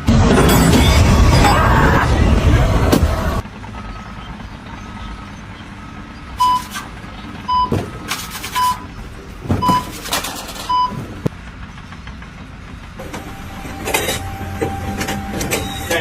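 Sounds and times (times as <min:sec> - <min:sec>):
low engine rumble: 0:00.0 - 0:16.0
reversing alarm beeping: 0:03.7 - 0:06.8, 0:07.4 - 0:09.0, 0:09.6 - 0:10.0, 0:10.7 - 0:11.0.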